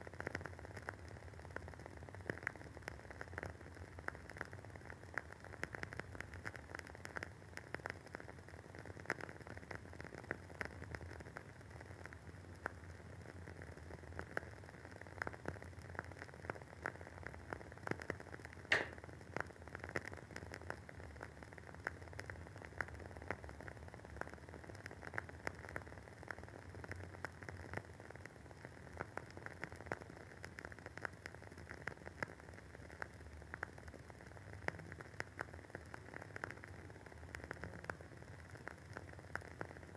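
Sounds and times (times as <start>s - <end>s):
faint hiss: 18.7s - 19.0s
candle wick crackling: 18.7s - 19.2s.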